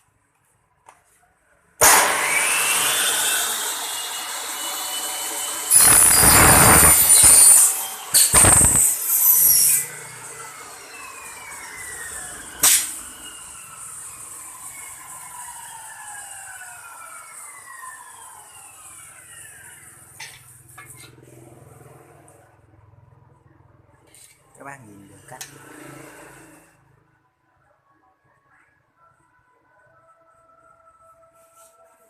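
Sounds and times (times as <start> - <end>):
saw cutting aluminium: 1.8 - 21.8, 24.1 - 26.8
saw blade whine coasting down: 1.8 - 22.4.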